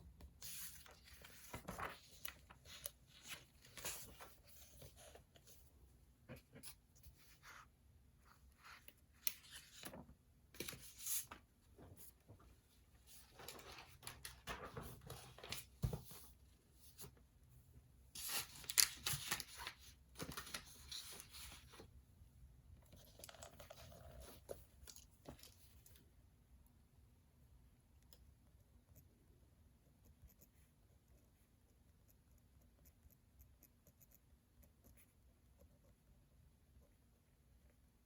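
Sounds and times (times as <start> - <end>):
paper rustling and tearing: 0.4 - 4.6.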